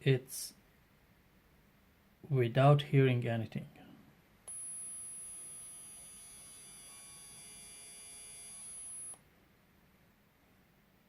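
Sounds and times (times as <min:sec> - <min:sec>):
electronic buzz with high whine: 0:04.5 - 0:09.2.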